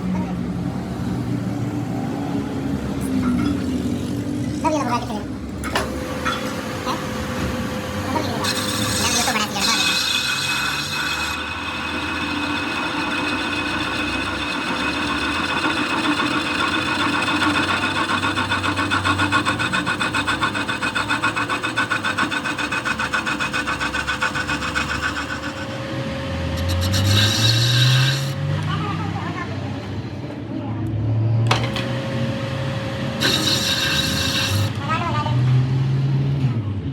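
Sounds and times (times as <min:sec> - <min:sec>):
motor hum: 0:05.4 - 0:30.5, 0:31.4 - 0:36.6
metal rasping scrape: 0:05.8 - 0:30.3, 0:31.5 - 0:32.4, 0:33.1 - 0:35.8.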